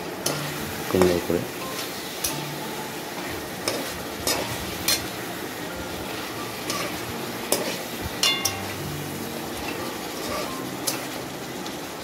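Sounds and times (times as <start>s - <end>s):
meat sizzling in pan: 0.0s - 12.0s
metal spatula scraping and clanking: 0.2s - 0.7s, 1.6s - 5.1s, 6.1s - 8.9s, 9.6s - 11.2s.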